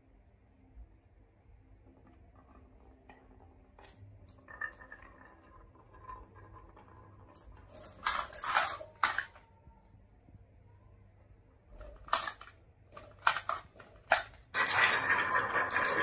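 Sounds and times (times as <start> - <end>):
marbles rolling on wooden track: 1.7 - 9.4, 11.7 - 16.0.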